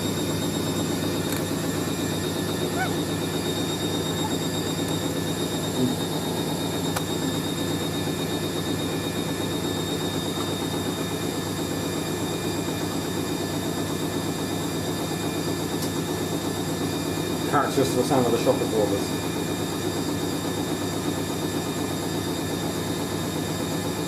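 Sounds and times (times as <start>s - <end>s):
washing machine spinning: 0.0s - 24.0s.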